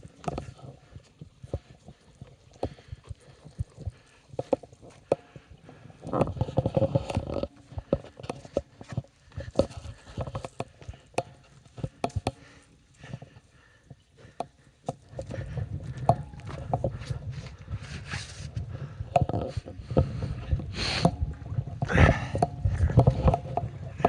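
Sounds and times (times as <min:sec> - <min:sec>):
footsteps on rocky ground: 0:15.2 - 0:24.0.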